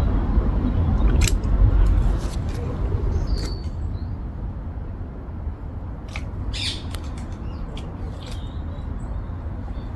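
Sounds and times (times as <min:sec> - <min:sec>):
steady low rumble: 0:00.0 - 0:09.9
harsh bird squawk: 0:06.5 - 0:07.1.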